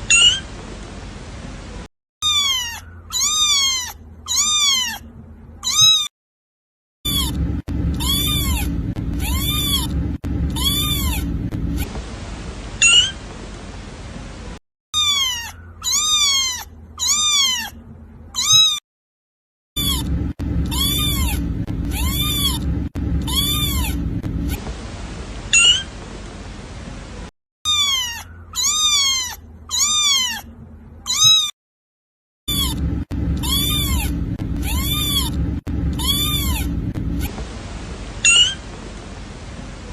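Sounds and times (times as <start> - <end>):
kitten meowing: 0.1 - 0.4, 2.2 - 6.1, 7.1 - 11.9, 15.0 - 17.8, 18.4 - 18.8, 19.8 - 24.1, 27.7 - 30.5, 31.1 - 31.5, 32.5 - 37.3, 38.2 - 38.6
low steady rumble: 7.1 - 14.6, 15.2 - 18.4, 19.8 - 27.3, 32.5 - 39.9.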